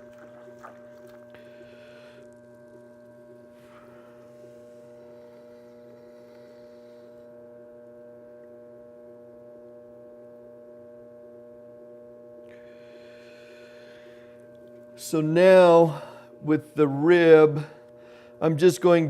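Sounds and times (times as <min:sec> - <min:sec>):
potter's wheel motor humming: 0:00.0 - 0:09.2.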